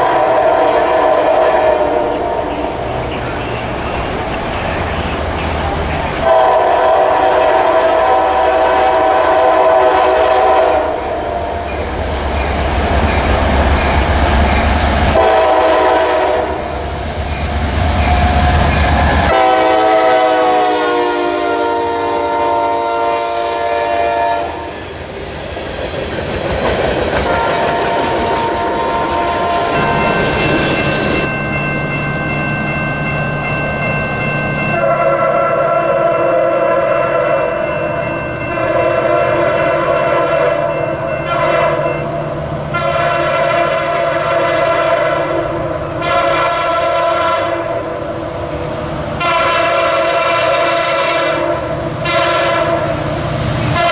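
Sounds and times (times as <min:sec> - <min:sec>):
locomotive horn blasts: 0:00.0 - 0:03.7, 0:06.1 - 0:11.7, 0:15.1 - 0:16.7, 0:18.1 - 0:24.8, 0:27.3 - 0:31.3, 0:34.7 - 0:37.7, 0:38.6 - 0:42.0, 0:42.7 - 0:48.0, 0:49.2 - 0:53.0, 0:53.7 - 0:53.9.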